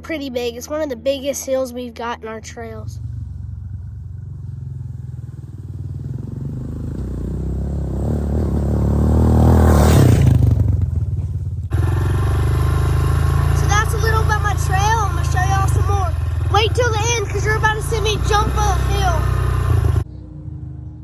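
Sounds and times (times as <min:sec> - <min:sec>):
dirt bike engine running: 0:02.4 - 0:20.1.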